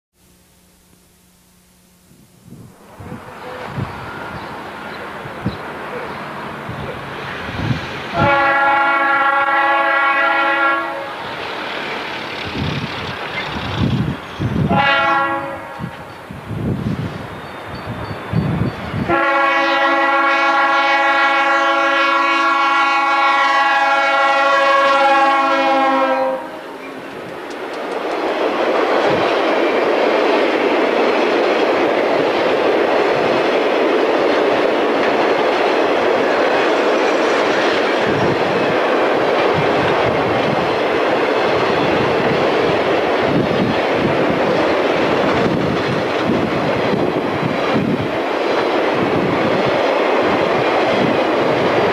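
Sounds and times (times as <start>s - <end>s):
freight train rumbling by: 2.2s - 51.9s
locomotive air horn blast: 8.1s - 11.3s, 14.7s - 16.0s, 19.1s - 26.8s.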